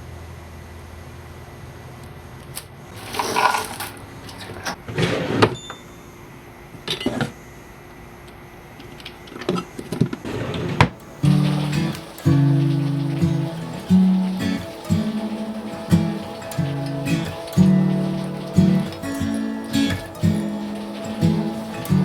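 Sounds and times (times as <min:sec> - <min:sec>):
tools clunking and rattling: 0:03.0 - 0:04.0.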